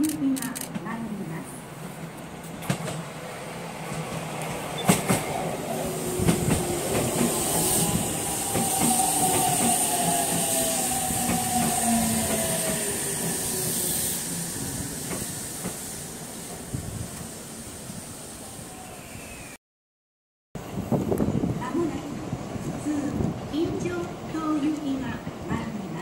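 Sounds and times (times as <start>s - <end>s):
electric train whine: 2.0s - 19.6s.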